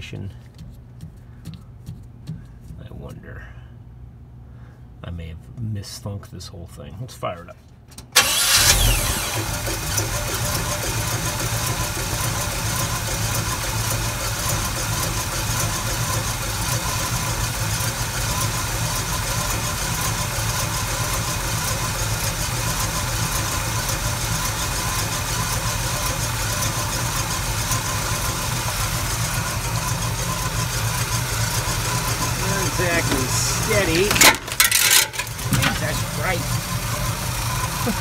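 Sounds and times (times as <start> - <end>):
engine idling: 8.2 - 38.0.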